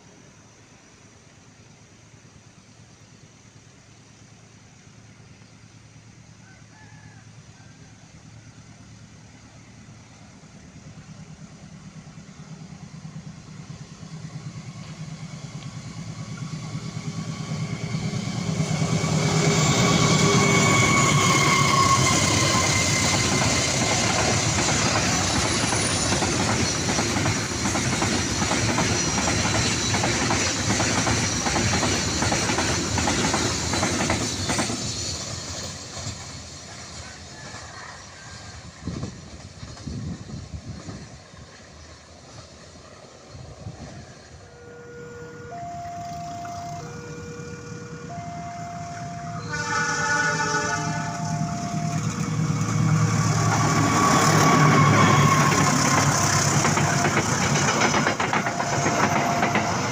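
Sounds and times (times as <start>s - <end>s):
diesel locomotive engine drone: 0.0s - 59.9s
locomotive whine: 7.3s - 59.9s
wheels clacking over rail joints: 14.1s - 43.1s, 51.8s - 59.9s.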